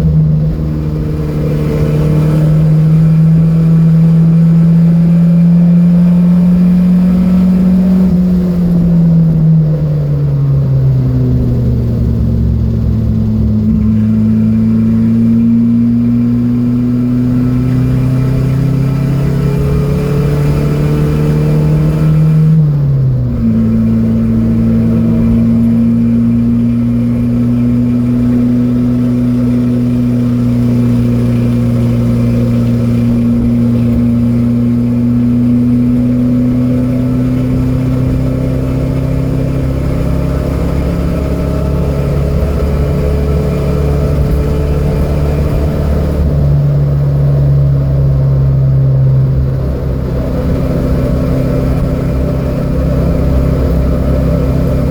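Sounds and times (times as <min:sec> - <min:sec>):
car engine pulling hard: 0:00.0 - 0:54.9.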